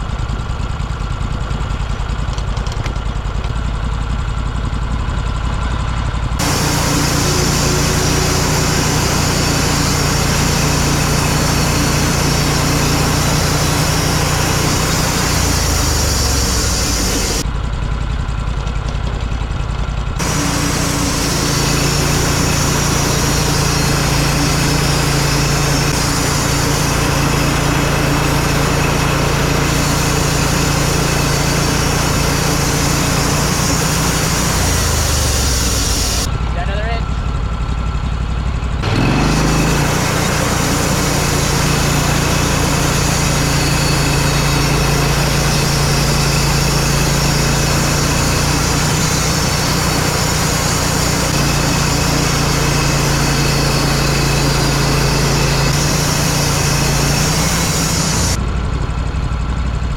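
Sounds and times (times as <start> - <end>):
small gasoline engine running: 0.0 - 59.9
loud hiss: 6.4 - 17.4, 20.2 - 36.3, 38.8 - 58.4.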